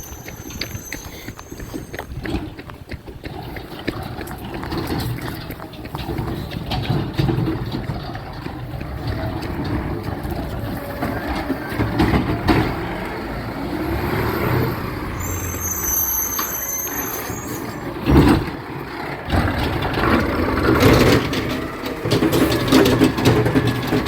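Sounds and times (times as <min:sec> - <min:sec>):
air brake squeal: 0:00.0 - 0:02.2, 0:14.1 - 0:18.0
diesel engine running: 0:04.3 - 0:24.0.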